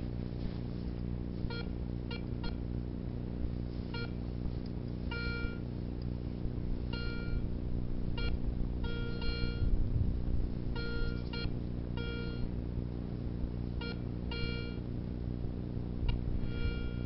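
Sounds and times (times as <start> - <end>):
steady low hum: 0.0 - 17.0
metal detector beeps: 3.9 - 4.2, 5.1 - 5.6, 6.9 - 7.4, 8.2 - 9.7, 10.8 - 12.5, 13.8 - 14.8, 16.4 - 17.0.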